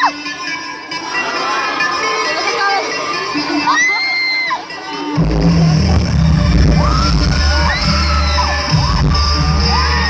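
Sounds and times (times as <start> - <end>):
crowd cheering and screaming: 0.0 - 10.0
long high scream: 6.8 - 10.0.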